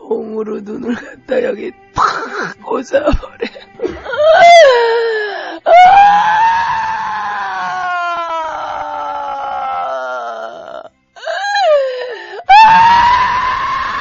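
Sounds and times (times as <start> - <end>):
person screaming in pain: 5.6 - 14.0.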